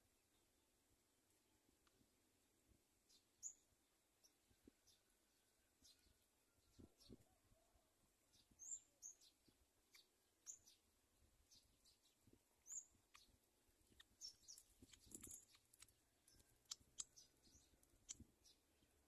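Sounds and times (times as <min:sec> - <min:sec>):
high bird chirps: 0:11.5 - 0:18.6.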